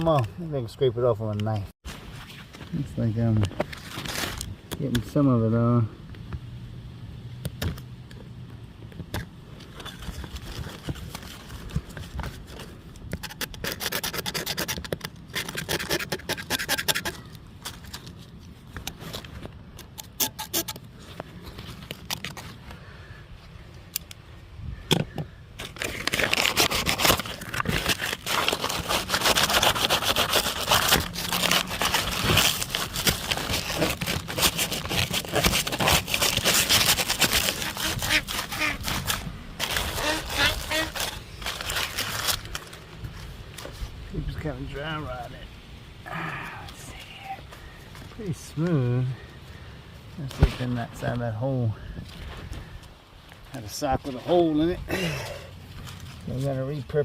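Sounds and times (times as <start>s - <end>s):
scraping against a pipe: 18.8s - 22.6s.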